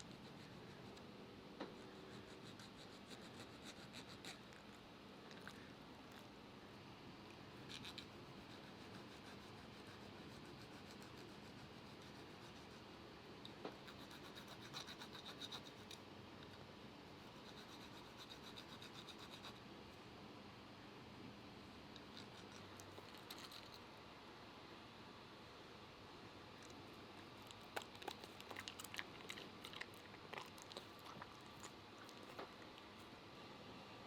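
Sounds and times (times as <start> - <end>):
dog nails being filed: 1.8 - 4.8, 7.6 - 12.8, 13.8 - 16.0, 17.3 - 19.6.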